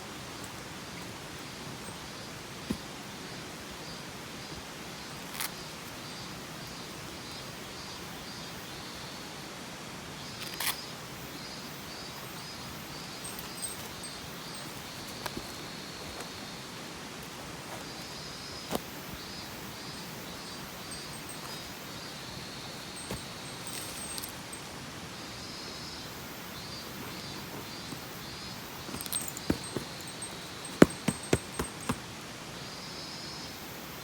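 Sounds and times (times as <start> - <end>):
faint high chirping: 10.4 - 16.7, 17.6 - 32.0.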